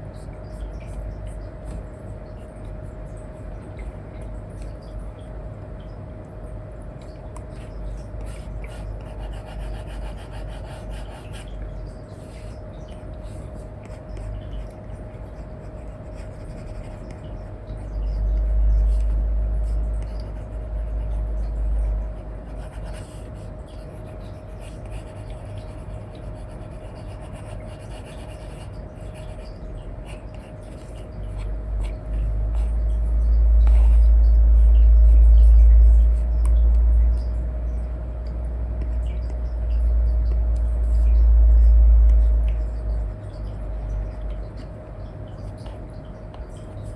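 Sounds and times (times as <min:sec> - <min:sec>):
faint hum: 0:00.0 - 0:46.9
deep low rumble: 0:31.4 - 0:44.7.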